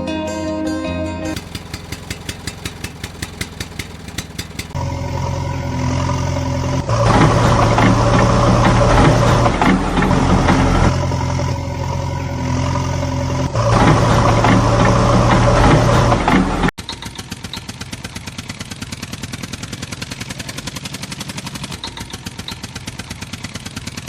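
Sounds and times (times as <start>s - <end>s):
engine running steadily: 1.3s - 24.0s.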